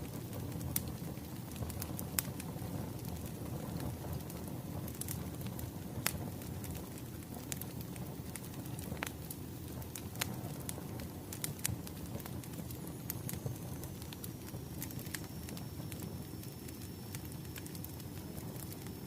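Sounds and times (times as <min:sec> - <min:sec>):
wood fire crackling: 0:00.0 - 0:19.0
high whistle of hissing sap: 0:12.8 - 0:19.0.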